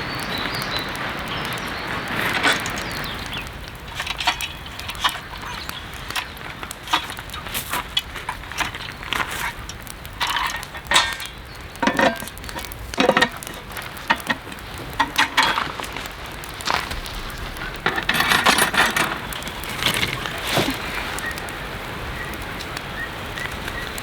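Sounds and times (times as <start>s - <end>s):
steady hiss: 0.0s - 24.0s
cookware clinking and knocking: 11.8s - 14.4s.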